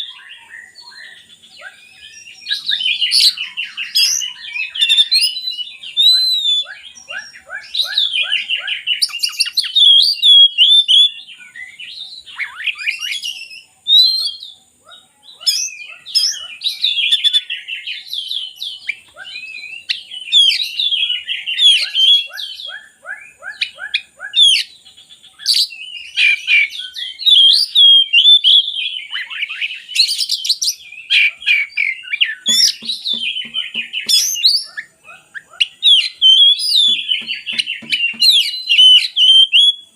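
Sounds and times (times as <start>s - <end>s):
bird singing whistled phrases: 0.0s - 39.9s
rapid chattering bird notes: 32.4s - 39.7s.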